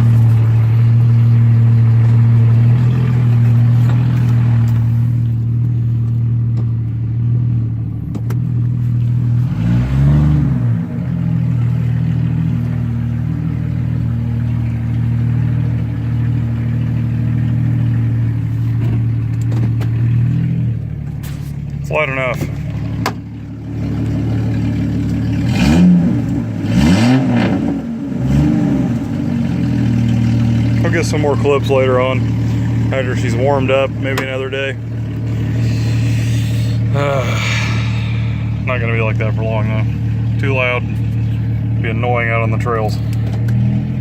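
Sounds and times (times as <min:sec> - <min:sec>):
loud engine revving: 0:09.2 - 0:12.6, 0:25.0 - 0:29.8, 0:30.8 - 0:40.4.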